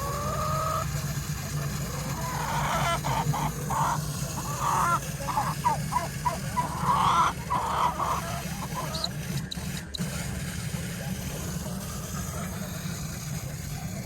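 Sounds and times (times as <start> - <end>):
poultry squawking and honking: 0.0 - 0.9, 2.1 - 9.2
steady low hum: 0.0 - 14.0.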